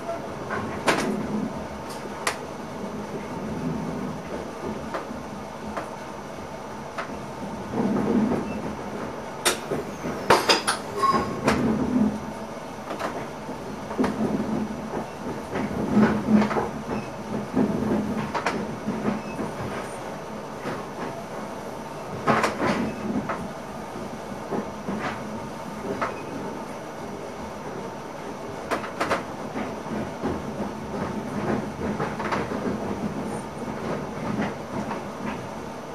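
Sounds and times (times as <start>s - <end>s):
train knocks: 0.0s - 2.4s, 7.0s - 21.5s, 22.1s - 26.6s, 28.6s - 35.5s
train low rumble: 0.0s - 35.9s.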